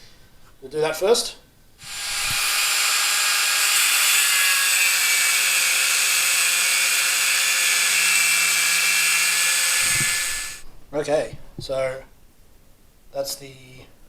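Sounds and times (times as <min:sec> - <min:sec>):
angle grinder cutting metal: 0:01.8 - 0:10.6.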